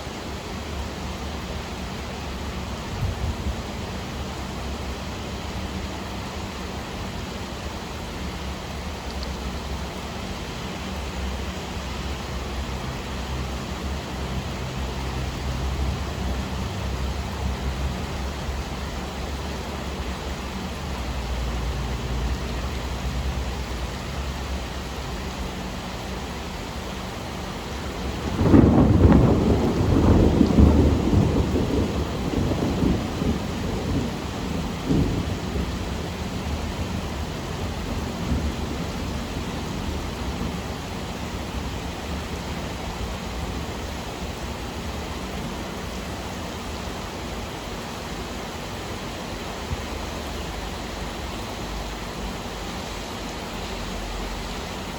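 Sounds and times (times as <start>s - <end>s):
steady rain: 0.0s - 54.9s
thunder rumbling: 2.8s - 4.6s, 27.2s - 46.8s.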